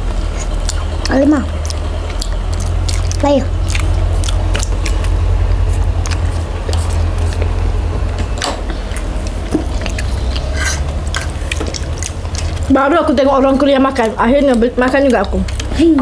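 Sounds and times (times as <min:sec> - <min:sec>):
low rumble: 0:00.0 - 0:16.0
people chewing: 0:00.0 - 0:16.0
mouth clicks and smacks: 0:00.3 - 0:07.6.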